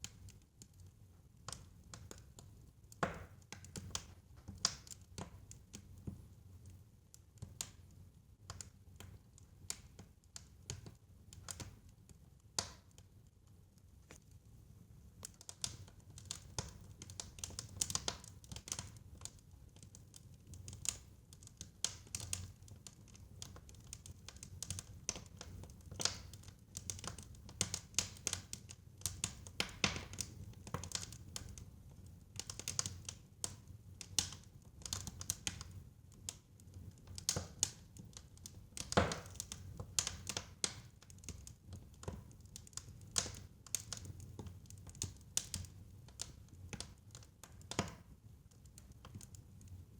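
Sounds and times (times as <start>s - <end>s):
fire crackling in a fireplace: 0.0s - 49.9s
fire pop: 39.0s - 39.4s.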